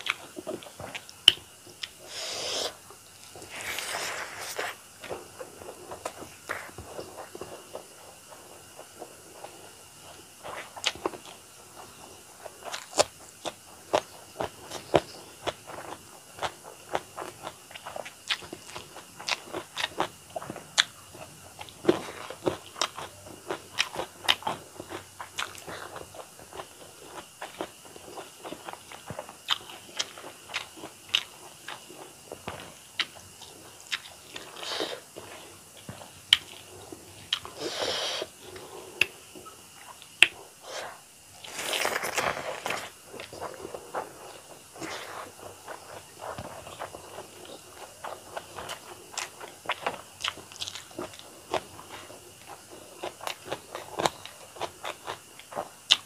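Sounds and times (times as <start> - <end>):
wet chewing: 21.6 - 56.0.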